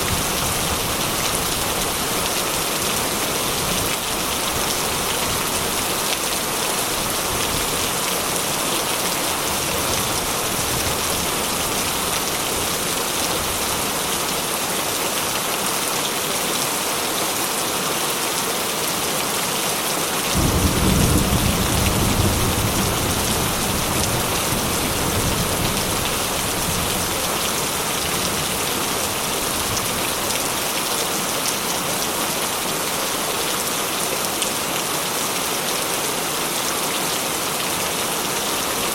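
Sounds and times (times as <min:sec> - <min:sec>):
heavy rain falling: 0:00.0 - 0:38.9
low rumble of thunder: 0:20.4 - 0:27.2.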